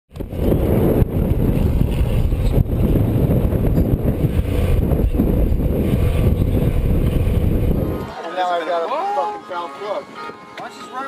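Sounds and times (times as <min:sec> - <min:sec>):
motorcycle engine running: 0:00.1 - 0:08.1
wind buffeting microphone: 0:00.1 - 0:08.1.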